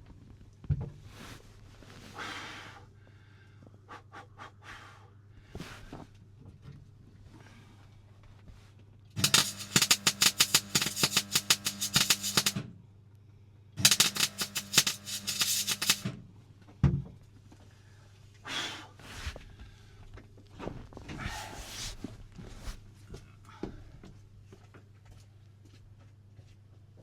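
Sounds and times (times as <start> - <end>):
brief hissing scrapes: 9.2 - 12.6, 13.8 - 16.1
electric arc welding crackling: 9.2 - 12.6, 13.8 - 16.2
steady electrical hum: 9.2 - 12.7, 13.8 - 16.2.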